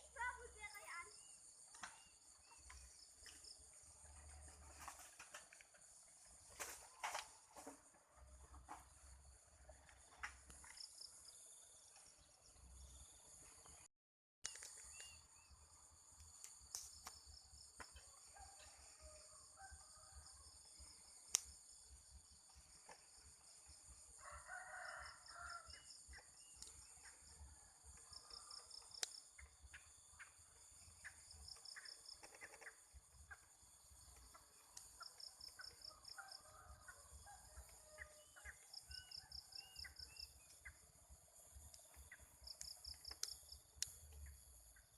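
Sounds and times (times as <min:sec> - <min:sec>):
high insect hum: 0:14.5 - 0:44.9
rooster crowing: 0:24.1 - 0:25.8
small bird calls: 0:28.0 - 0:36.0.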